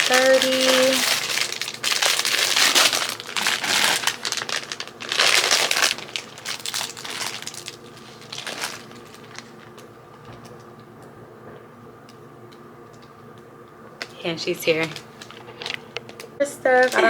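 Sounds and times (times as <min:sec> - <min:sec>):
plastic packaging crinkling: 0:00.0 - 0:10.7, 0:14.8 - 0:17.0.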